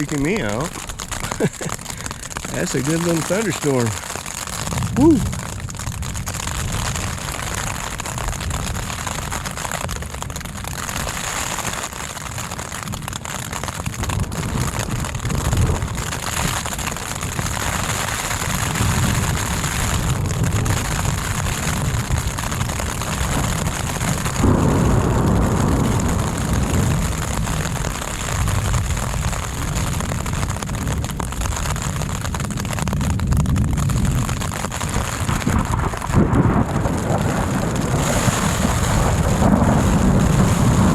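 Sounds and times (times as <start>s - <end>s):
heavy rain: 0.0s - 40.9s
rolling thunder rumbles: 14.0s - 40.9s.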